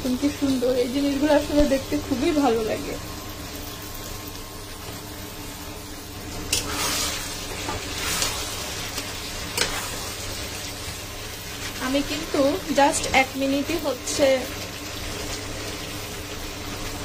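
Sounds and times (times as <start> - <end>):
vegetables sizzling in a wok: 0.0 - 17.0
metal spatula scraping: 6.5 - 10.5.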